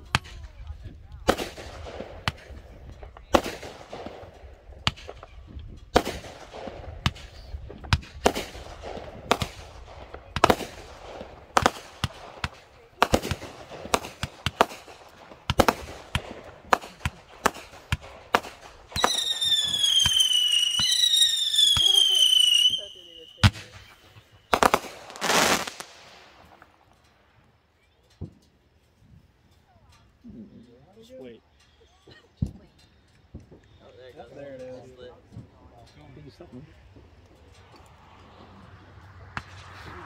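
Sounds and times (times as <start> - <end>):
firework bangs: 0.0 - 26.9, 36.8 - 40.0
whistling firework: 1.3 - 27.2, 36.2 - 40.0.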